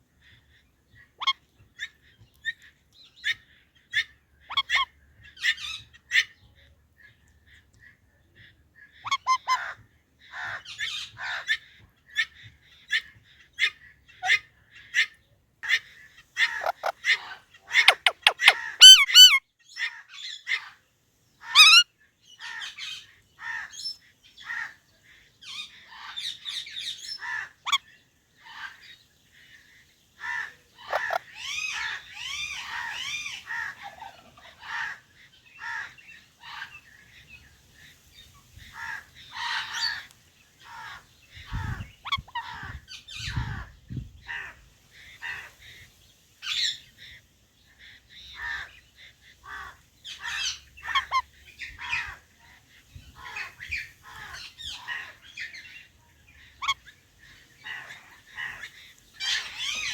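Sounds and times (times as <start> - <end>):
parrots squawking: 16.4 - 19.4, 21.5 - 21.8, 30.8 - 35.0, 49.4 - 51.2, 56.6 - 56.8, 59.2 - 59.9.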